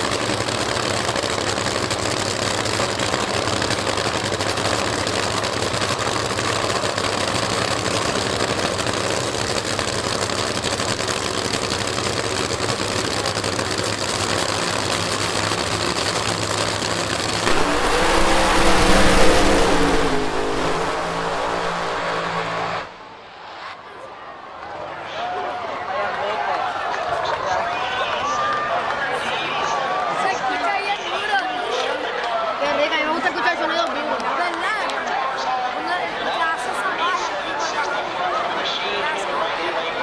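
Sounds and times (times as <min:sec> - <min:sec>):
jet turbine engine roaring: 0:08.4 - 0:24.0
car powering past: 0:15.2 - 0:23.7.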